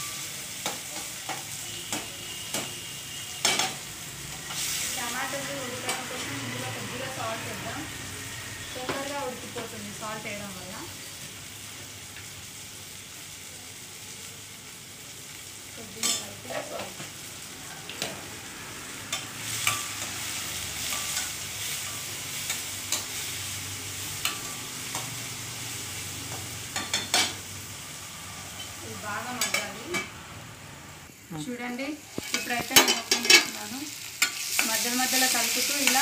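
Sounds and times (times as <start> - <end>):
vegetables sizzling in hot oil: 0.0 - 36.0.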